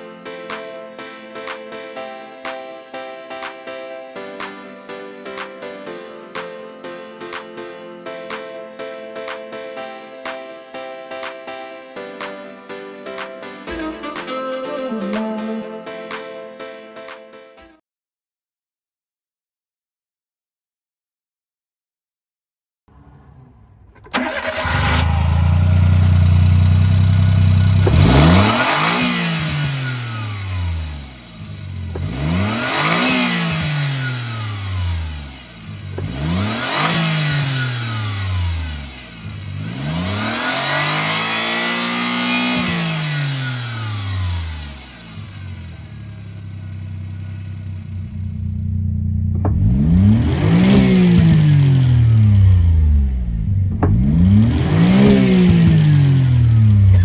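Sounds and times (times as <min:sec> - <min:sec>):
car engine idling and revving: 0:22.9 - 0:57.0.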